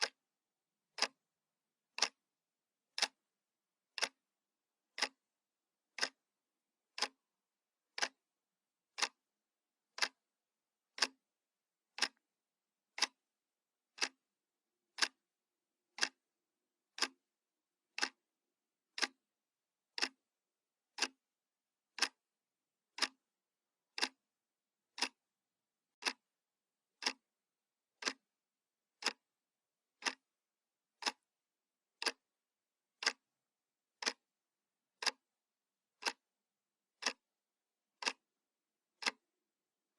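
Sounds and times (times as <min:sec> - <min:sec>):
wall clock ticking: 0:00.0 - 0:00.2, 0:00.9 - 0:01.2, 0:01.9 - 0:02.2, 0:02.9 - 0:03.3, 0:03.9 - 0:04.2, 0:04.9 - 0:05.3, 0:05.9 - 0:06.3, 0:06.9 - 0:07.3, 0:07.9 - 0:08.2, 0:08.9 - 0:09.3, 0:09.9 - 0:10.2, 0:10.9 - 0:11.2, 0:11.9 - 0:12.2, 0:12.9 - 0:13.2, 0:13.9 - 0:14.2, 0:14.9 - 0:15.2, 0:15.9 - 0:16.2, 0:16.9 - 0:17.3, 0:17.9 - 0:18.2, 0:18.9 - 0:19.3, 0:19.9 - 0:20.3, 0:20.9 - 0:21.2, 0:21.9 - 0:22.3, 0:22.9 - 0:23.2, 0:23.9 - 0:24.3, 0:24.9 - 0:25.3, 0:25.9 - 0:26.3, 0:26.9 - 0:27.3, 0:28.0 - 0:28.3, 0:29.0 - 0:29.4, 0:30.0 - 0:30.4, 0:31.0 - 0:31.3, 0:31.9 - 0:32.3, 0:33.0 - 0:33.4, 0:34.0 - 0:34.3, 0:35.0 - 0:36.3, 0:37.0 - 0:37.3, 0:38.0 - 0:39.3.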